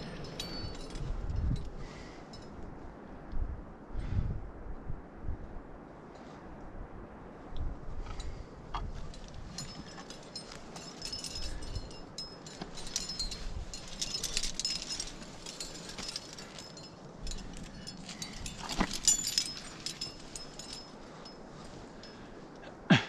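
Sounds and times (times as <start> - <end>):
metal gear clatter: 0.0 - 1.1, 8.2 - 21.4
metal carabiners clinking: 0.0 - 2.6, 8.0 - 22.2.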